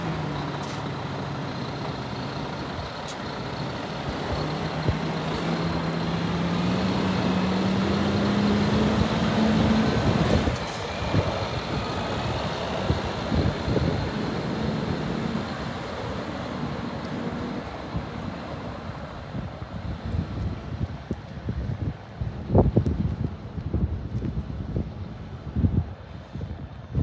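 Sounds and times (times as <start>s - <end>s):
truck diesel engine running: 0.0s - 20.8s.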